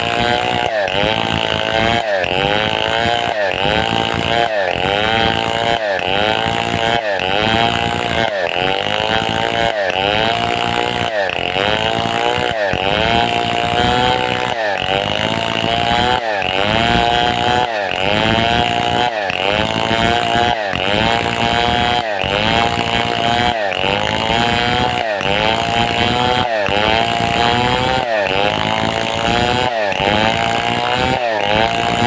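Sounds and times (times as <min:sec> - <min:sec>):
chainsaw cutting log: 0:00.0 - 0:32.0.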